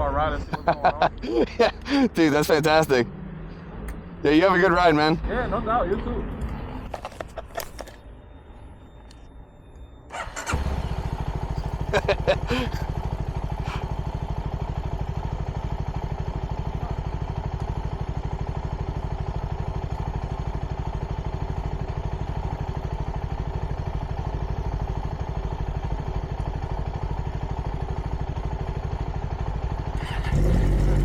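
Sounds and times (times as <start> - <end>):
motorcycle engine idling: 10.1 - 31.0.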